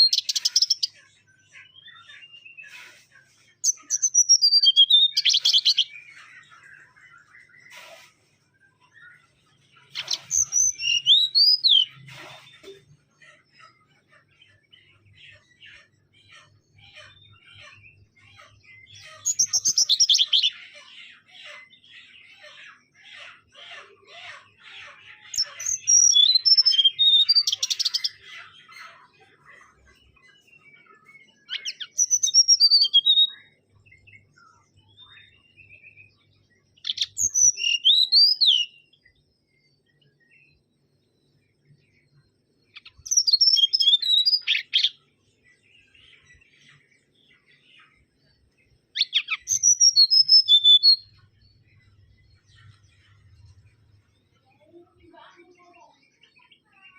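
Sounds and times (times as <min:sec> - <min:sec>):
bird whistling song: 0:00.0 - 0:00.9, 0:03.6 - 0:06.1, 0:09.9 - 0:12.0, 0:18.9 - 0:20.6, 0:25.3 - 0:28.2, 0:31.4 - 0:34.1, 0:36.8 - 0:39.0, 0:42.7 - 0:45.0, 0:48.9 - 0:52.8.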